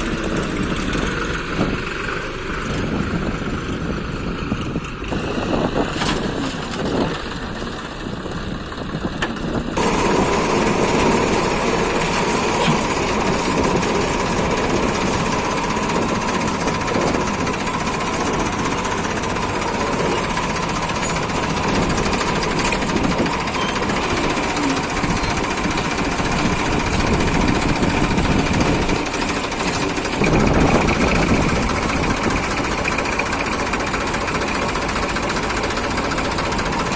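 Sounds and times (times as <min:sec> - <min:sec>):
diesel engine knocking clatter: 0:00.0 - 0:36.9.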